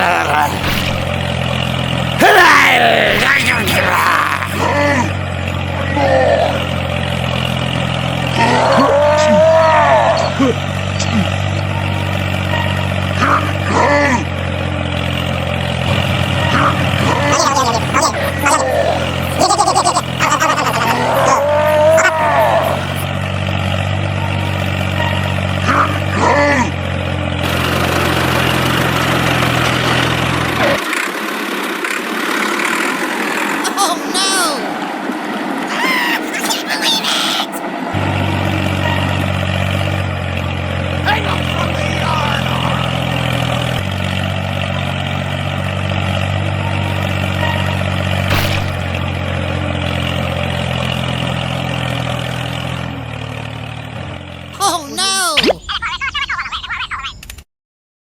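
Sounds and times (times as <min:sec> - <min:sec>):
short cry: 0:00.0 - 0:01.3, 0:02.2 - 0:04.8, 0:33.6 - 0:34.8, 0:35.7 - 0:37.7, 0:41.0 - 0:42.9, 0:54.6 - 0:55.6
brief swish: 0:00.5 - 0:01.3.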